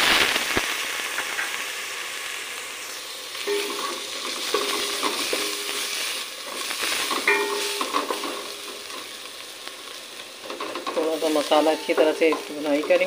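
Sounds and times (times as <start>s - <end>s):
masala sizzling in a pot: 0.0s - 13.0s
spatula stirring and scraping: 3.5s - 9.2s.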